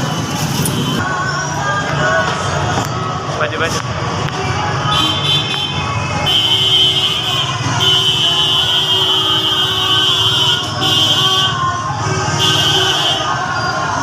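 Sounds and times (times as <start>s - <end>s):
street traffic rumble: 0.0s - 14.0s
vehicle horn blasts: 4.9s - 11.6s.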